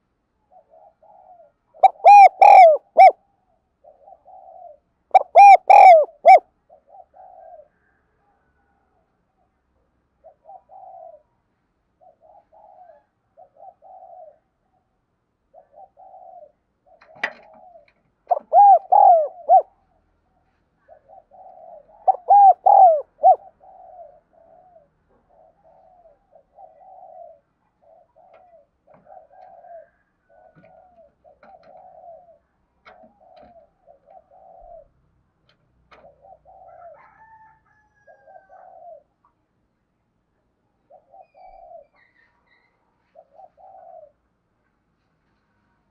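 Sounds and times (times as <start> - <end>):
doves cooing: 0.0 - 3.2, 3.8 - 8.0, 10.2 - 11.3, 12.0 - 14.6, 15.5 - 20.0, 20.8 - 35.0, 35.9 - 39.2, 40.9 - 42.2, 43.1 - 44.3.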